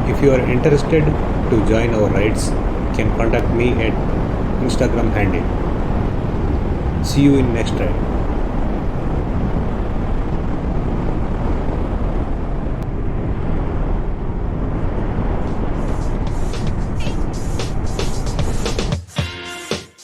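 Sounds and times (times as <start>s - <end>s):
wind rush on microphone: 0.0s - 18.9s.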